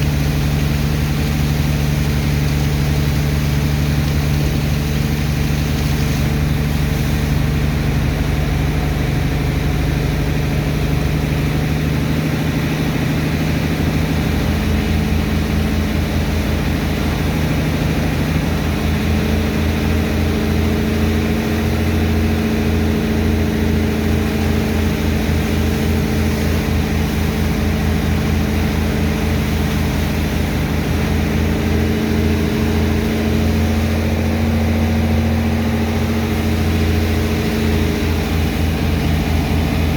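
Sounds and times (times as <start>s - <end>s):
heavy pump engine running: 0.0s - 39.9s
fast low pulsing: 23.5s - 39.9s.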